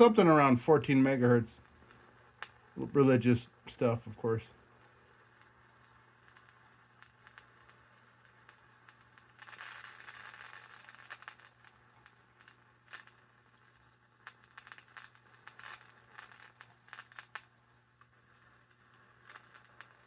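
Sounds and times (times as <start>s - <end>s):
radio static hiss: 0.0s - 1.7s, 2.5s - 4.6s
scattered crackles: 0.0s - 20.0s.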